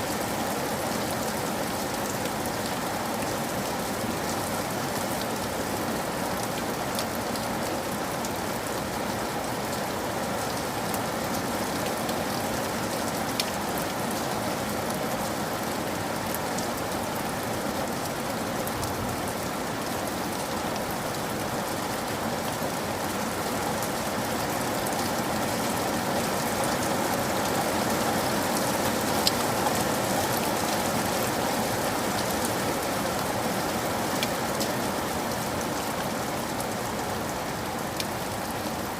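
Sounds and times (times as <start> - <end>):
rain hiss: 0.0 - 38.9.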